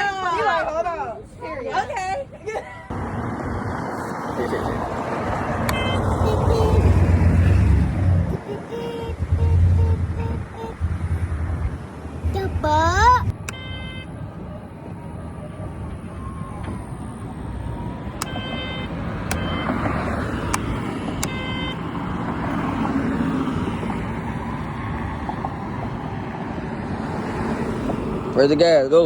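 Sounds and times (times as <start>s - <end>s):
vehicles passing: 0.0s - 29.0s.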